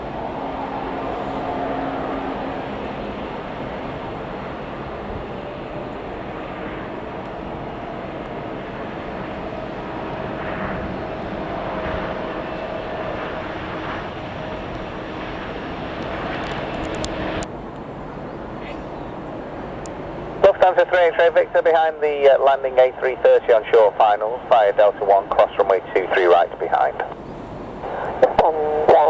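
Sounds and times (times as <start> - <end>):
jet engines rushing and whining: 0.0 - 29.0
strong storm wind: 0.0 - 29.0.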